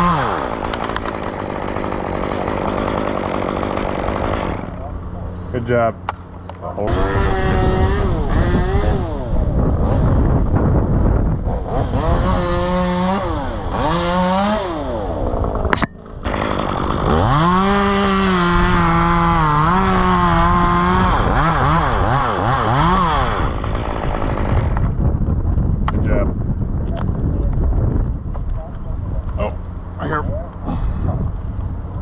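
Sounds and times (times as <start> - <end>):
chainsaw revving: 0.0 - 4.9, 6.9 - 10.1, 11.5 - 24.9.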